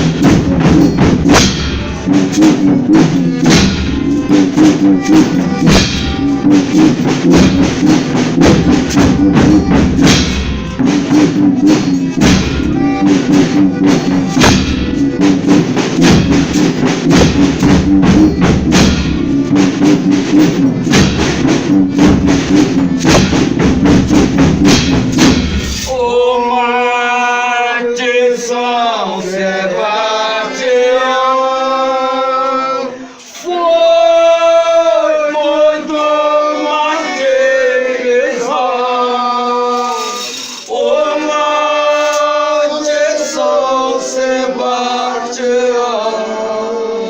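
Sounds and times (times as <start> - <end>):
steady low instrumental drone: 0.0 - 26.0
drums and tambourine rhythm: 0.0 - 26.5, 33.1 - 33.6, 38.2 - 46.5
voices singing long notes: 1.8 - 22.1, 25.9 - 47.0.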